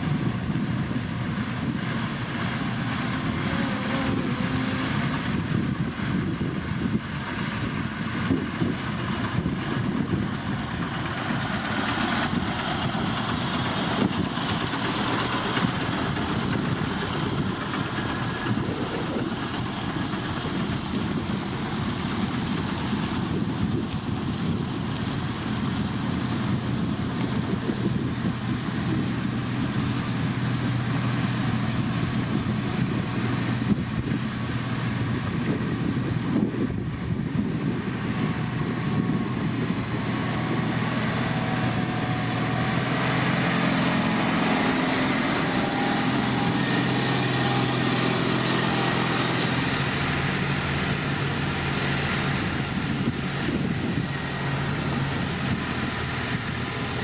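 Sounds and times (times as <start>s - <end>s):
diesel machinery engine hum: 0.0s - 57.0s
higher engine note: 0.5s - 6.2s, 26.9s - 57.0s.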